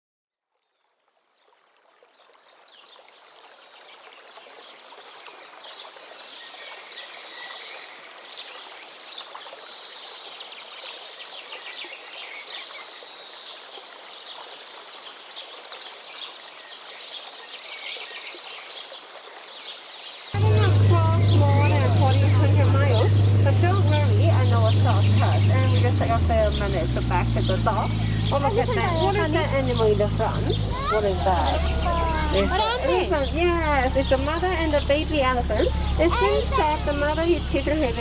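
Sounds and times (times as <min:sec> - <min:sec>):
running water: 0:00.9 - 0:38.0
birds chirping: 0:20.4 - 0:38.0.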